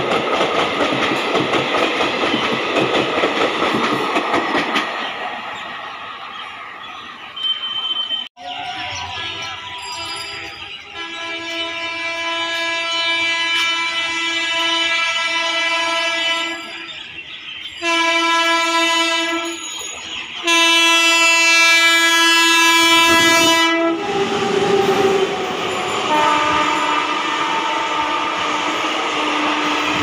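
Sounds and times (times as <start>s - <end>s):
train passing: 0.0s - 30.0s
locomotive horn blasts: 9.3s - 16.9s, 17.8s - 19.6s, 20.4s - 24.2s, 25.8s - 30.0s.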